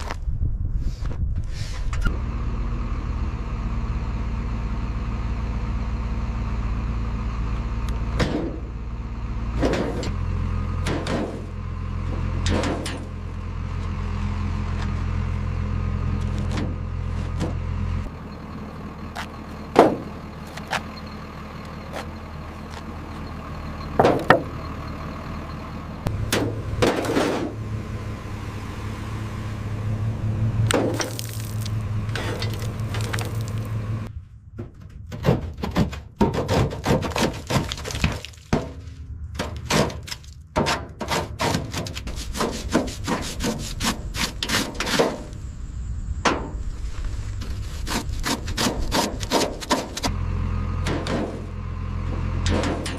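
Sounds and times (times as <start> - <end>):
low hum: 0.0 - 35.6, 38.5 - 52.9
quick scraping strokes: 41.1 - 45.3.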